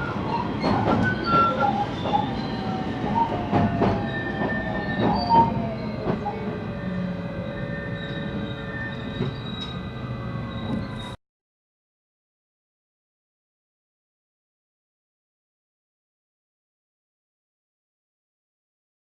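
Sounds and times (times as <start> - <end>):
electric train inverter whine: 0.0 - 11.2
high wheel squeals: 0.0 - 11.2
wheels clacking over rail joints: 0.2 - 2.4.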